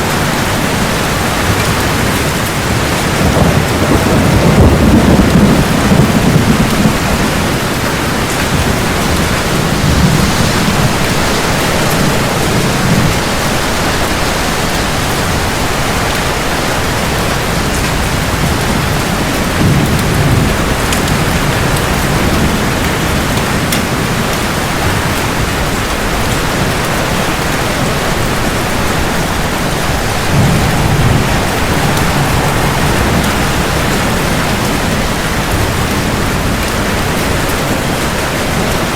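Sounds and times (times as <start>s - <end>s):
heavy rain falling: 0.0s - 38.9s
thunder rumbling: 0.0s - 38.9s.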